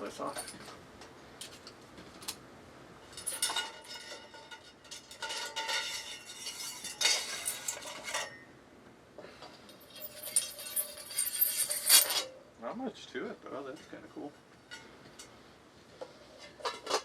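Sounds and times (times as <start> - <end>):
metal lamp parts clinking: 0.0 - 0.8, 3.0 - 8.4, 9.5 - 12.4, 16.3 - 17.0.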